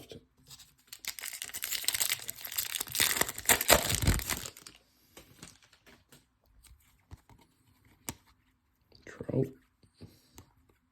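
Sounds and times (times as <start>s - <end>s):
foil wrapper crinkling: 0.9s - 5.9s.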